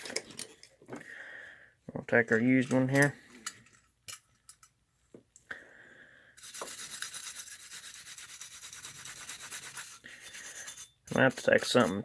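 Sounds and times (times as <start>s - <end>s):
brush scrubbing strokes: 6.4s - 12.0s.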